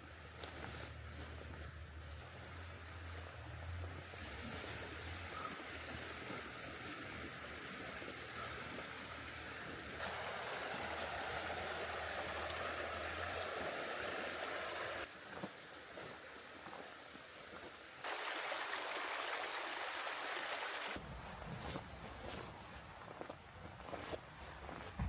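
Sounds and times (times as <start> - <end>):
steady rain falling: 2.6 - 15.1, 18.0 - 21.0.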